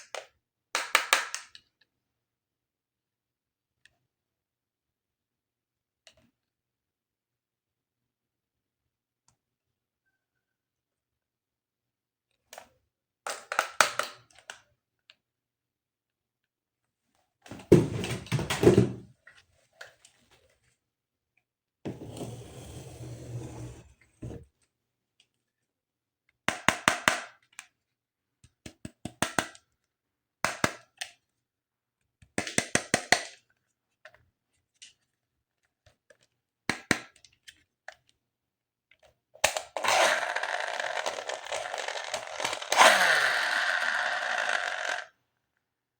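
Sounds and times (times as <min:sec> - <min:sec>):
plastic pieces clicking and tapping: 0:39.0 - 0:45.1.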